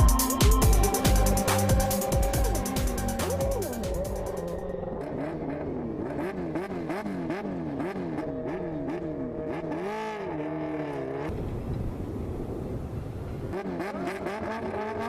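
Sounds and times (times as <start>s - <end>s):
racing engine revving: 0.0s - 11.4s, 13.5s - 15.0s.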